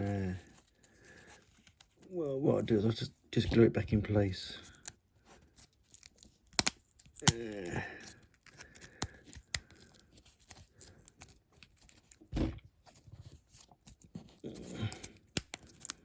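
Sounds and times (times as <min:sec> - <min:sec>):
small parts clicking and tapping: 0:05.7 - 0:12.2, 0:14.9 - 0:16.0.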